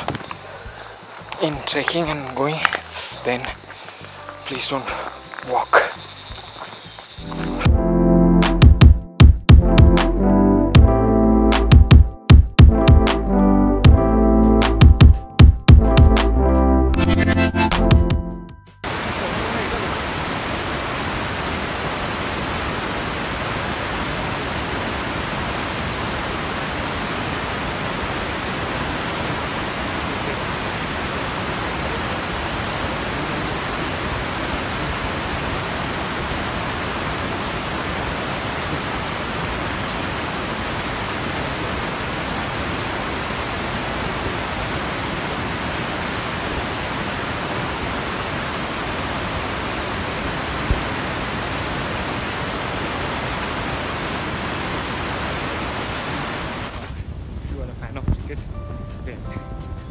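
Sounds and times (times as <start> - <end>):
rush of flowing water: 0.0 - 7.7, 18.8 - 57.0.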